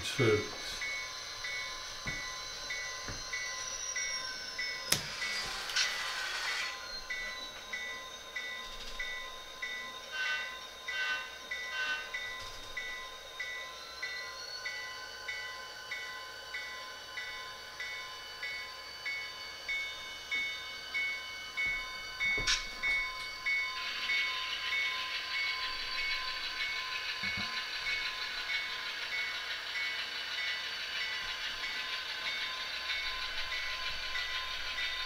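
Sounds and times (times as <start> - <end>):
locomotive bell ringing: 0.0 - 35.0
hiss: 5.0 - 6.8.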